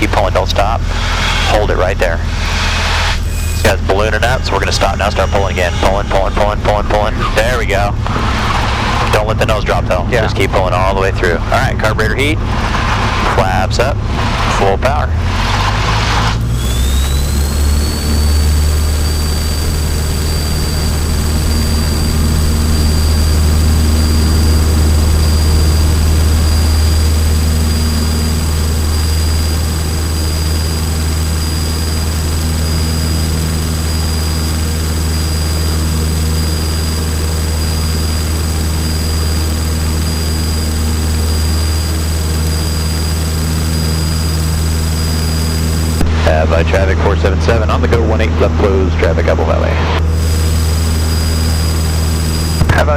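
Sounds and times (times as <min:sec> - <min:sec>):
aircraft piston engine drone: 0:00.0 - 0:52.9
high engine whine: 0:00.0 - 0:52.9.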